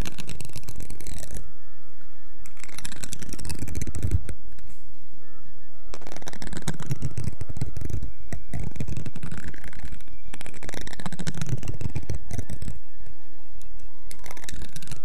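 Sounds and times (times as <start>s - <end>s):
scratching and crackling: 0.0s - 1.7s, 2.3s - 15.0s
rapid clicks: 6.0s - 13.0s, 13.6s - 15.0s.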